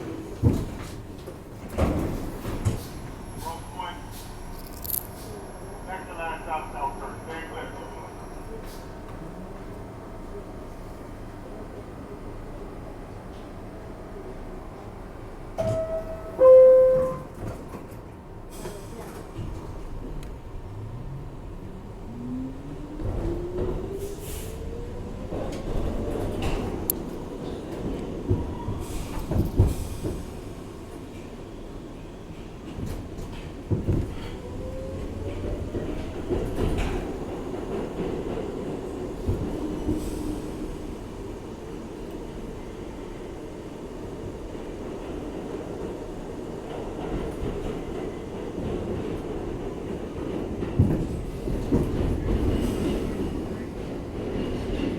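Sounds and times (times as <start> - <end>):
standing train rumble: 0.0 - 54.9
two-tone door-closing chime: 15.6 - 17.4.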